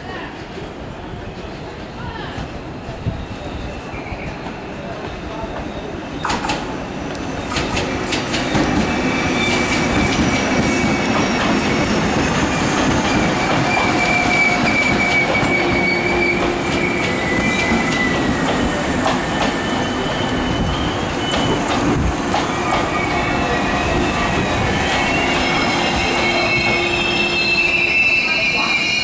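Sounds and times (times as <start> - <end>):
train wheels rumbling on rail: 0.0 - 29.0
high-pitched wheel squeal: 12.6 - 18.8, 19.4 - 21.7, 22.7 - 29.0.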